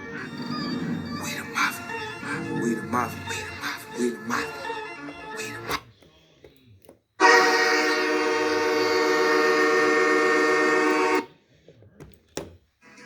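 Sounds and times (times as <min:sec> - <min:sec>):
horn chord blast: 0:07.2 - 0:11.3.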